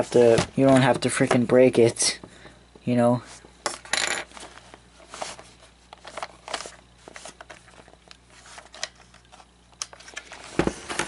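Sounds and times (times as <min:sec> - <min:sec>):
plastic parts clicking and rustling: 0:05.9 - 0:11.0.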